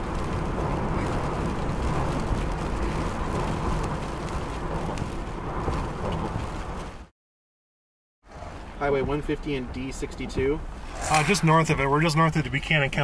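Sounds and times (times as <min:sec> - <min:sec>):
vehicle rumbling inside cabin: 0:00.0 - 0:07.1
wind buffeting car: 0:00.0 - 0:07.1, 0:08.2 - 0:13.0.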